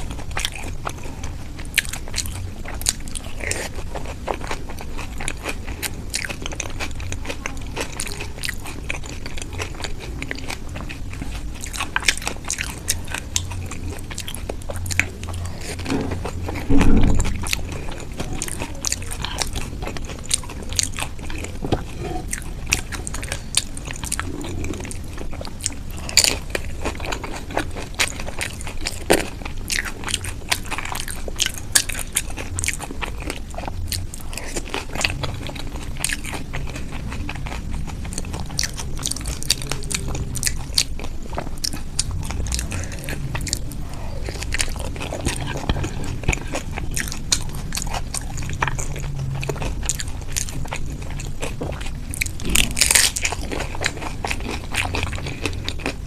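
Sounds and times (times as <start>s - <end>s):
close chewing and crunching: 0.0s - 56.0s
low bump: 15.9s - 18.0s.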